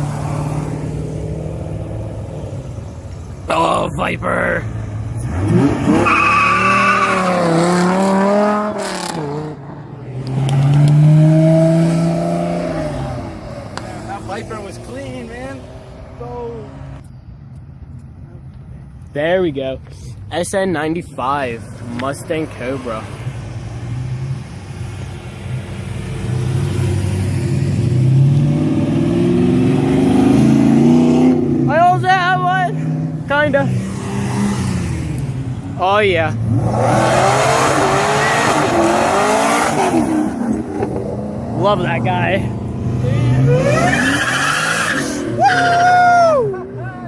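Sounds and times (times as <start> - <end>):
sports car engine revving: 5.1 - 15.7, 32.7 - 35.5, 36.3 - 45.4
tire squeal: 5.8 - 7.6, 37.7 - 38.9, 43.3 - 46.6.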